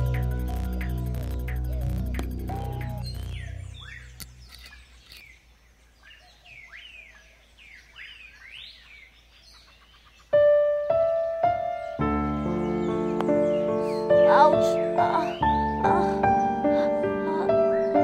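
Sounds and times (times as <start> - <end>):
loud struck music notes: 0.0 - 4.4
background music: 0.0 - 4.5, 10.4 - 18.0
birds chirping: 0.0 - 18.0.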